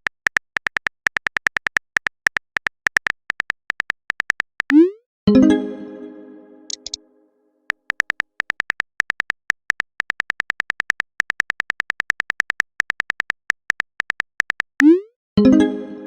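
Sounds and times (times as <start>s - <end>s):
phone keyboard typing clicks: 0.0s - 4.8s, 6.7s - 7.0s, 7.7s - 15.0s.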